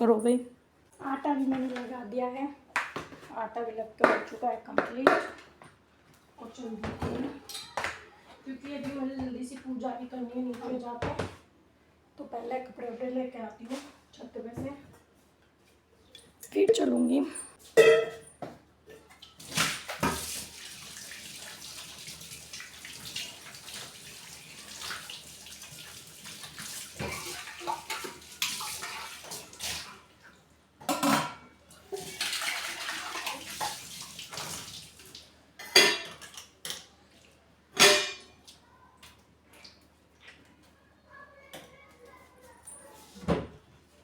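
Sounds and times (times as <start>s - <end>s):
dishes clattering: 17.6s - 18.3s, 27.0s - 28.9s, 30.8s - 33.8s, 35.6s - 36.9s, 37.8s - 38.4s
water running from a tap: 19.2s - 30.4s, 31.8s - 35.4s.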